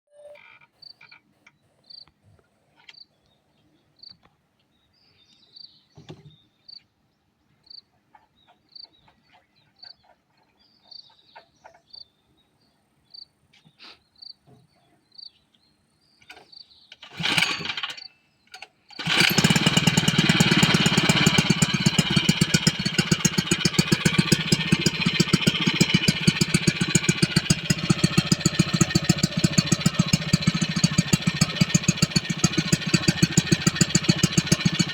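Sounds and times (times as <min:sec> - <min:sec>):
pull-starting small engine: 0:17.0 - 0:34.9
small engine running: 0:17.0 - 0:34.9.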